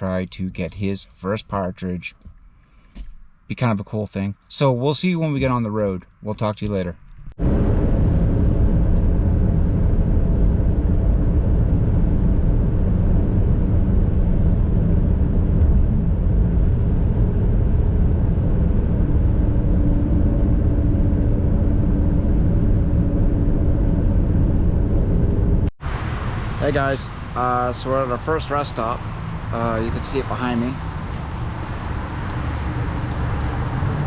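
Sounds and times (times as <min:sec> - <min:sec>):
road noise: 0:00.0 - 0:34.0
vehicle engine hum: 0:05.4 - 0:34.0.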